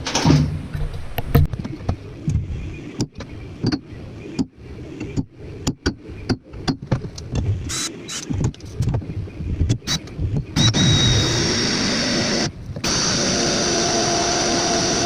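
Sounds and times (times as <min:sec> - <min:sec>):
knocks and clicks of tools: 0:00.0 - 0:11.0.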